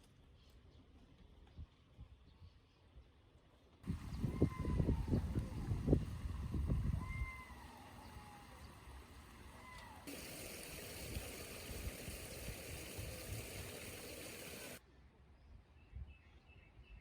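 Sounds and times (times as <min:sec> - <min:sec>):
rushing hiss: 0:03.9 - 0:14.8.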